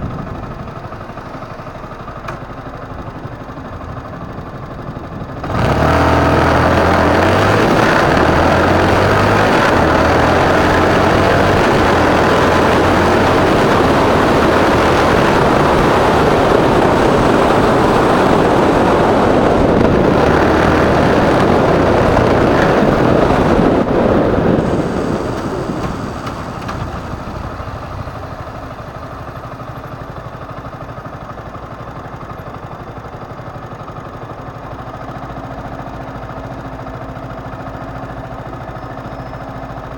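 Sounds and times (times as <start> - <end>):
loud wind noise: 0.0 - 0.8, 4.2 - 29.6
motorcycle engine running: 0.0 - 39.9
road noise: 0.0 - 39.9.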